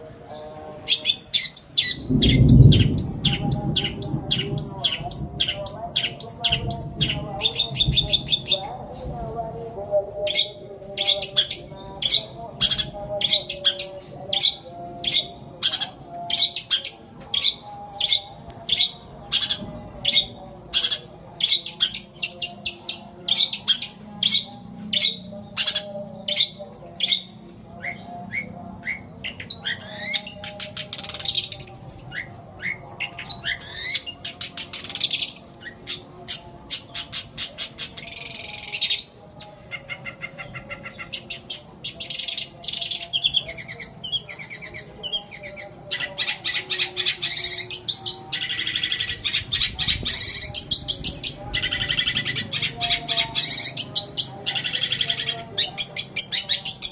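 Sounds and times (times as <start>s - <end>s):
bird singing mimicked calls: 0.3s - 8.6s, 10.2s - 56.9s.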